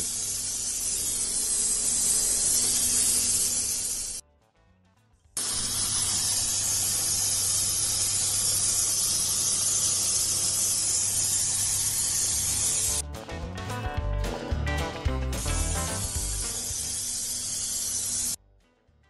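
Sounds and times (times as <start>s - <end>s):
hiss of leaking water: 0.0s - 4.2s, 5.4s - 13.0s, 15.4s - 18.4s.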